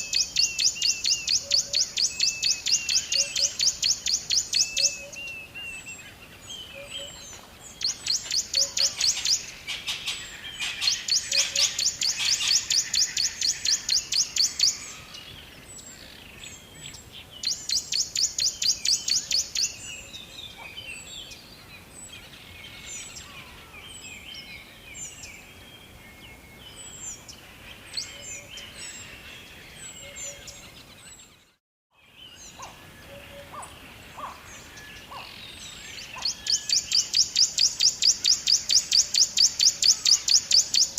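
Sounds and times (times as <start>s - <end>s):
birds chirping and singing: 0.0s - 40.9s.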